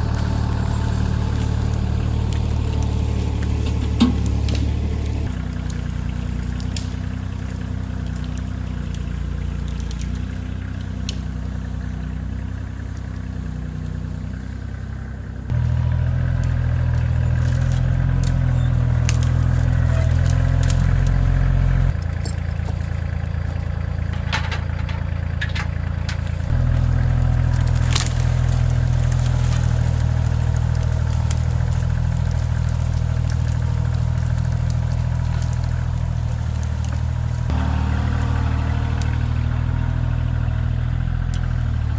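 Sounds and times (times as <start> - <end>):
diesel tractor engine under load: 0.0 - 41.9
sharp cracks and snaps: 3.7 - 11.4, 16.4 - 21.3, 25.4 - 39.6.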